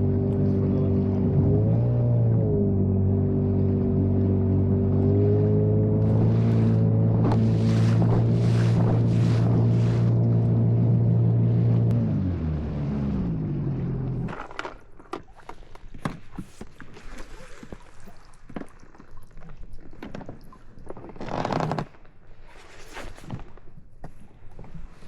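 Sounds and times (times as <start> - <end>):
motorboat engine running: 0.0 - 19.0.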